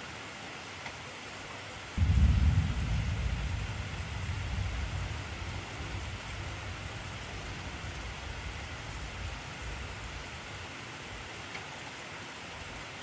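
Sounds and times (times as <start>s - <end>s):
heavy rain hissing: 1.9s - 13.0s
thunder rumble: 2.0s - 10.6s.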